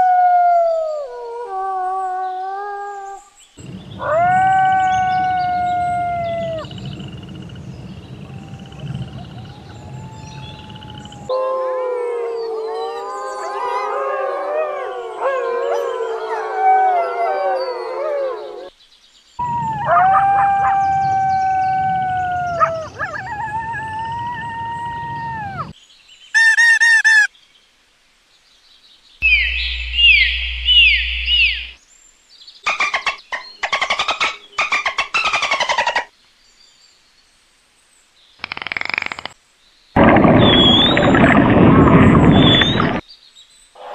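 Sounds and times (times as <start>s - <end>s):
faint wolf howl: 0.0s - 3.4s, 4.0s - 6.9s, 8.1s - 18.7s, 19.4s - 25.8s
bird chirps: 29.2s - 31.8s, 40.3s - 43.1s
short warbling call: 40.1s - 43.0s
dolphin whistles: 40.2s - 43.0s.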